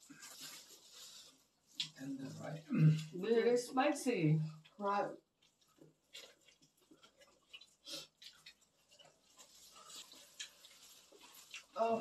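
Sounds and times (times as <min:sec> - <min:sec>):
people chewing: 0:00.0 - 0:03.3, 0:04.5 - 0:12.0
mouth clicks and smacks: 0:05.4 - 0:09.2.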